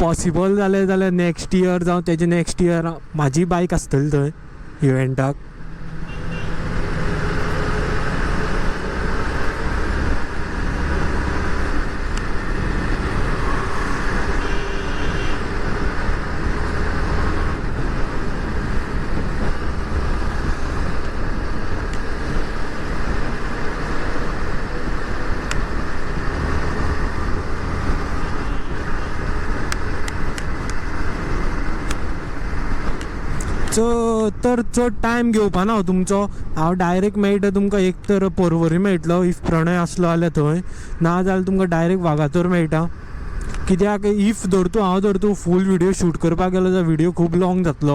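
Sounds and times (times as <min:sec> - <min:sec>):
motorcycle engine: 0:05.4 - 0:33.4.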